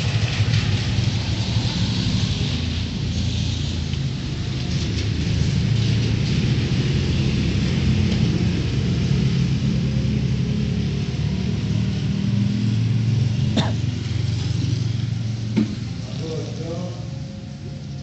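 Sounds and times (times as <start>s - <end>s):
low street rumble: 0.0s - 18.0s.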